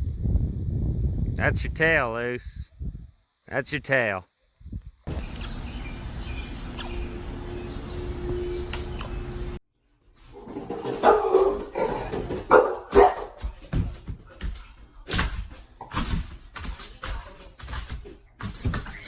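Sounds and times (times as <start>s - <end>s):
dog barking: 11.0s - 13.4s.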